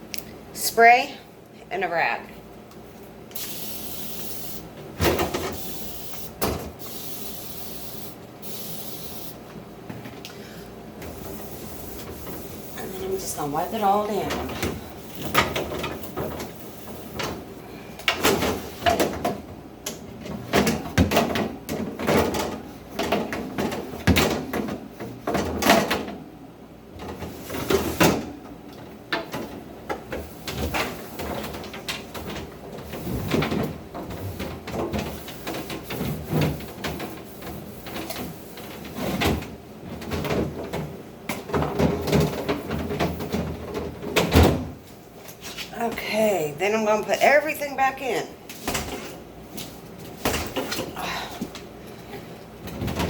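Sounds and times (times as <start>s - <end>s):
shelves and bins clattering: 4.7s - 6.9s, 11.0s - 46.5s, 48.0s - 53.0s.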